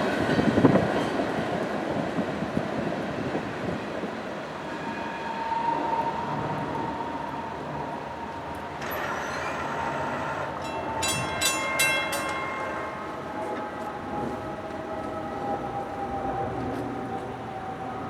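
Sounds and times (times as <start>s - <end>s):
train rumbling on tracks: 0.0s - 18.0s
metallic wheel squeals: 8.8s - 12.8s.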